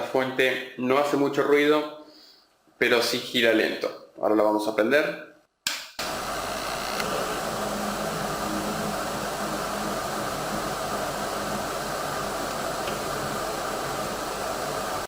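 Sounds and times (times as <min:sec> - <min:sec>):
cooling fan rushing: 0:06.0 - 0:15.0.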